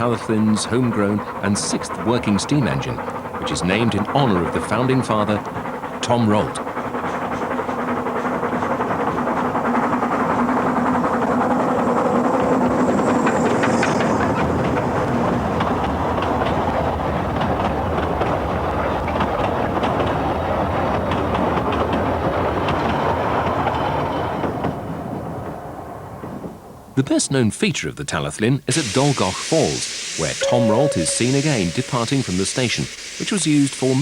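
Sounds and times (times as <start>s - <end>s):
wheels clicking over rail joints: 0.0s - 26.6s
steam train running past: 0.0s - 26.9s, 28.7s - 34.0s.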